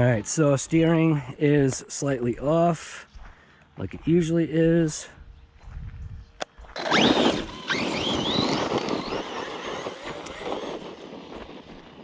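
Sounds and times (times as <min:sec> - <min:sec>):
electric motor whining: 0:06.7 - 0:12.0
tyres tearing over dirt: 0:06.8 - 0:12.0.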